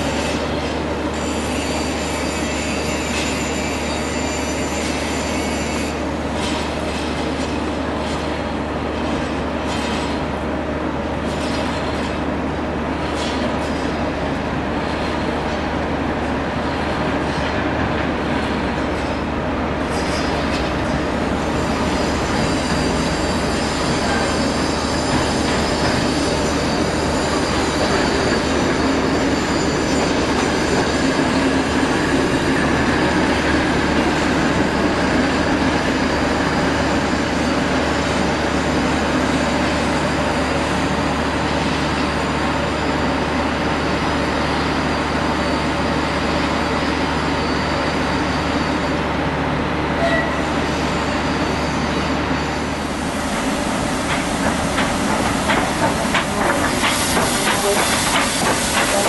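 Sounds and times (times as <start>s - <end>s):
train coaches rolling on rails: 0.0s - 59.0s
high wheel squeal: 1.1s - 6.1s, 19.9s - 33.6s, 44.4s - 49.2s, 50.0s - 59.0s.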